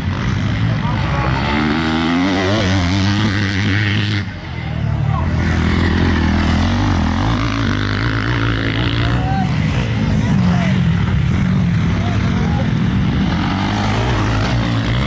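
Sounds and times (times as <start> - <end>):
dirt bike engines racing: 0.0 - 15.0.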